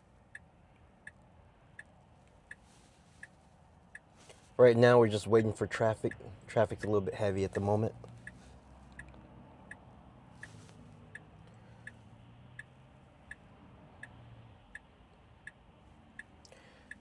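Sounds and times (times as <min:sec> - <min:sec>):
turn signal ticking: 0:00.0 - 0:17.0
low cabin hum: 0:01.0 - 0:10.0.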